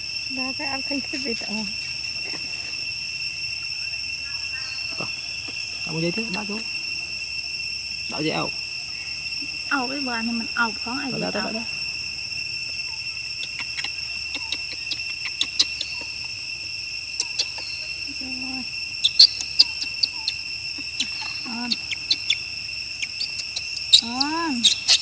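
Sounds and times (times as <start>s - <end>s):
high-pitched insect chorus: 0.0s - 25.0s
sharp clicks: 13.4s - 16.1s.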